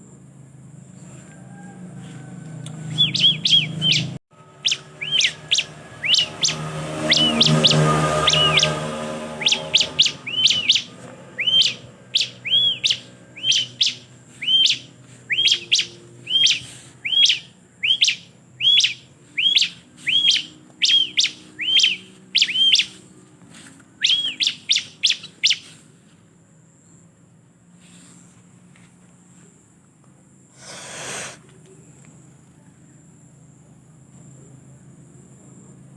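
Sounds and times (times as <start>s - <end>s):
bird sharp chirps: 2.8s - 23.1s, 24.0s - 25.8s.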